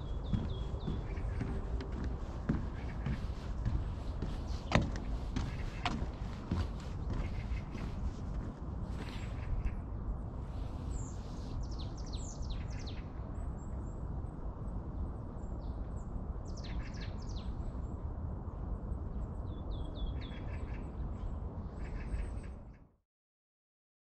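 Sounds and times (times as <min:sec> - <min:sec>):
steady low rumble: 0:00.0 - 0:16.5
songbirds chirping: 0:00.0 - 0:23.0.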